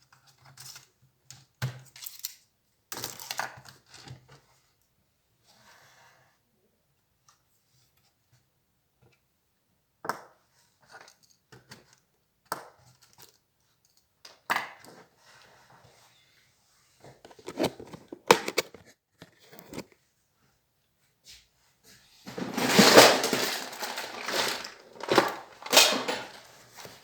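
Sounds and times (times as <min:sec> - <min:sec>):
laptop parts snapping and scraping: 0:17.3 - 0:19.8.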